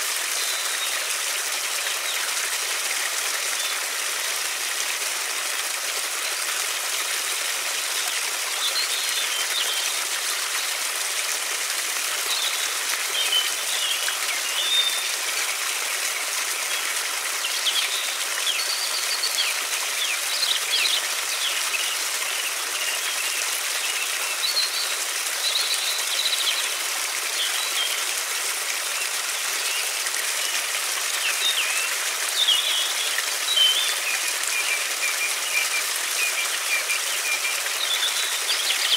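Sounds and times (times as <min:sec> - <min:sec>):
small birds chirping: 0:12.2 - 0:15.2, 0:28.9 - 0:38.9.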